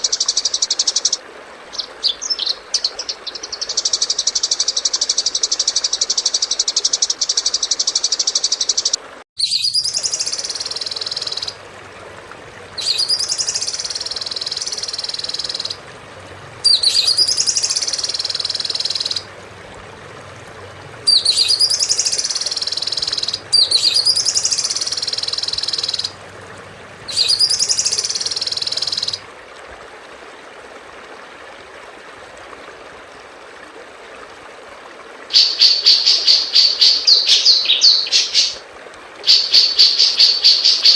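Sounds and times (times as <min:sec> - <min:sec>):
songbird trill: 0:01.8 - 0:11.6, 0:12.8 - 0:15.8, 0:16.6 - 0:19.3, 0:21.1 - 0:26.2, 0:27.1 - 0:29.2, 0:35.4 - 0:38.6.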